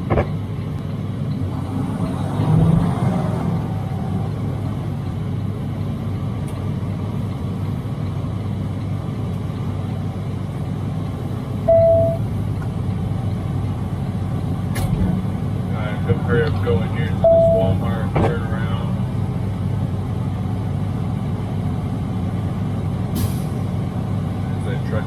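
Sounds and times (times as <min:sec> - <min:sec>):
diesel engine drone: 0:00.0 - 0:25.0
road noise: 0:00.0 - 0:25.0
short beep: 0:11.7 - 0:12.2, 0:17.2 - 0:17.8.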